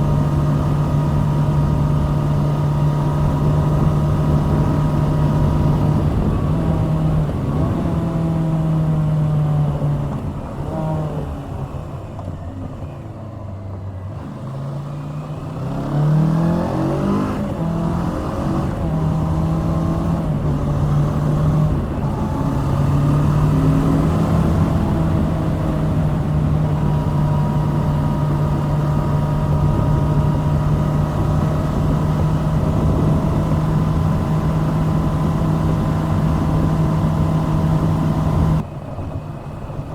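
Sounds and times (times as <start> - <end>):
motorcycle engine running: 0.0 - 13.0, 14.1 - 39.9.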